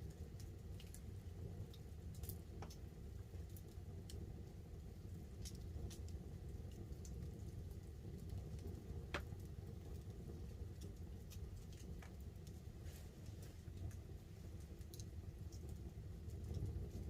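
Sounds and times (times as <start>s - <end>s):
light rain pattering on a tarp: 0.0s - 17.0s
wood fire crackling and popping: 0.0s - 17.0s.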